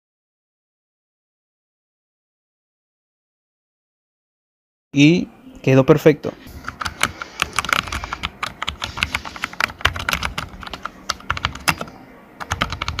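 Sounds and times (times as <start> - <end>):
computer keyboard typing: 6.6 - 13.0.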